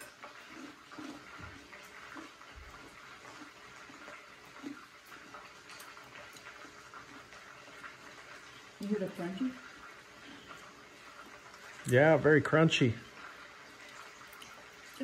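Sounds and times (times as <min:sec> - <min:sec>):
chewing and mouth sounds: 0:00.0 - 0:08.8.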